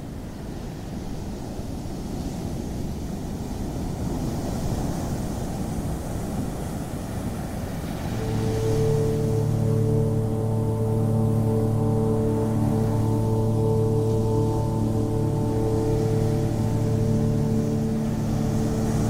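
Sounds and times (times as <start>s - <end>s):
ocean surf washing on beach: 0.0s - 19.0s
music drone of held tones: 7.8s - 19.0s.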